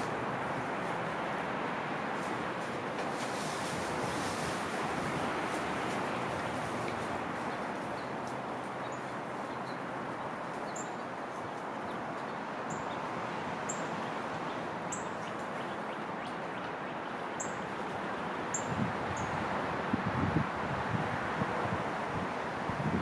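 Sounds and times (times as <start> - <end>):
songbird high chirps: 7.4 - 13.1, 13.7 - 17.7, 18.5 - 19.4.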